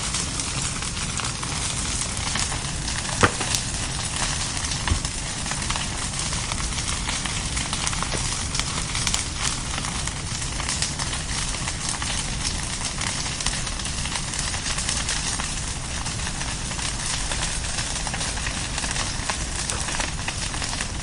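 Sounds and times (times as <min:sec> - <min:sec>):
bonfire crackling and popping: 0:00.0 - 0:21.0.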